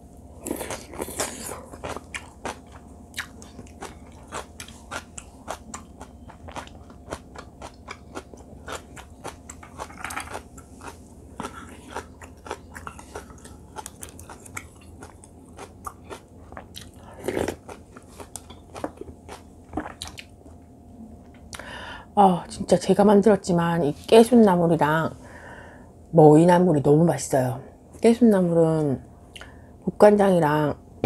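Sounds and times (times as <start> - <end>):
person chewing with wet mouth clicks: 0.4 - 20.3.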